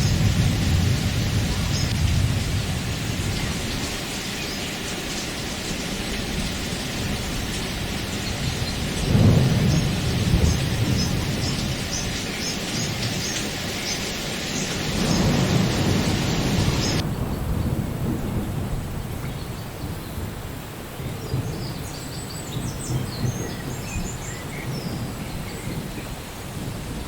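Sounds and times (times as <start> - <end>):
rolling thunder: 0.0 - 20.6
heavy rain: 0.0 - 27.0.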